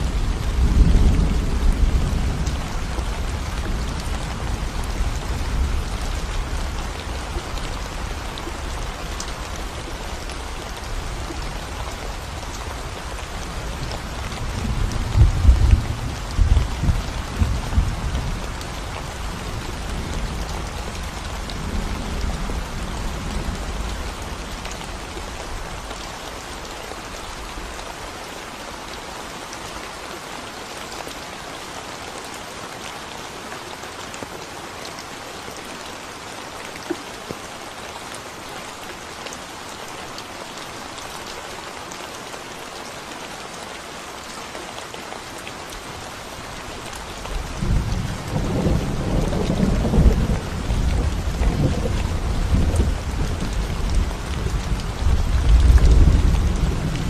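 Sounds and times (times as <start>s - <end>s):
rain pattering on concrete: 0.0s - 57.0s
thunder rumbling: 47.5s - 57.0s.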